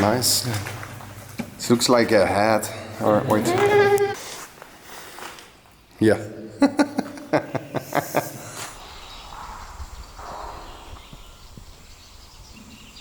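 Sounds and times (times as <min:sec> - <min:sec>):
bleating: 0:03.0 - 0:04.2.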